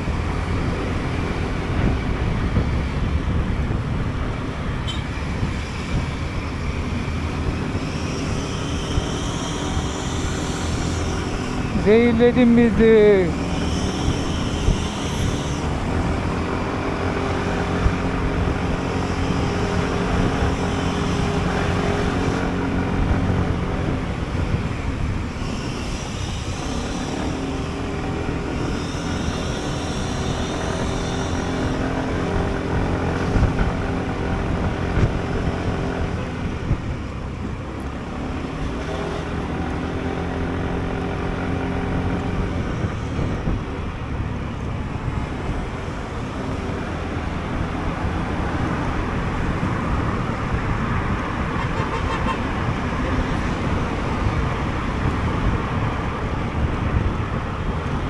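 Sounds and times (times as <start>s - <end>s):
wind and road noise: 0.0s - 58.0s
scooter engine running: 6.9s - 36.6s.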